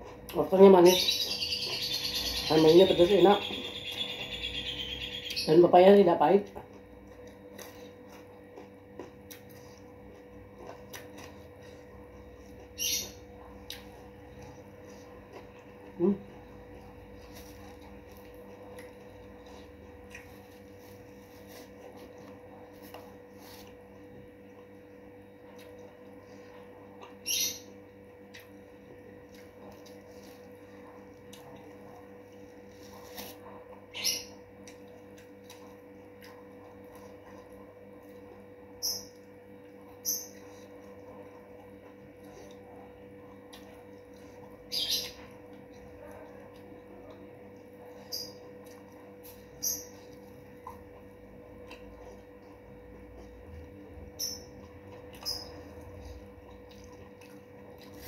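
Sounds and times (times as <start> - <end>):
faint electrical hum: 0.0 - 58.0
sharp chewing crunches: 6.6 - 24.6, 39.2 - 58.0.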